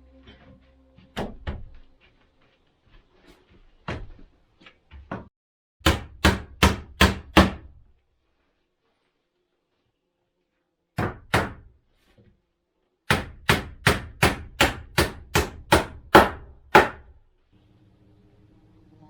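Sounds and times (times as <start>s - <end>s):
hammer striking wood: 5.8s - 7.7s, 11.0s - 11.7s, 13.1s - 17.2s.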